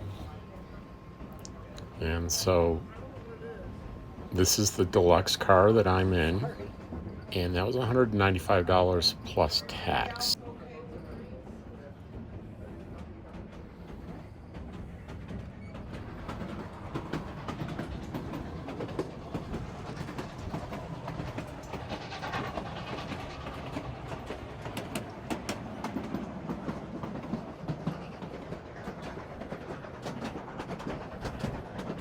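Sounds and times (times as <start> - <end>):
train car rumbling on rails: 0.0 - 32.0
wheels clicking and rattling: 13.8 - 32.0.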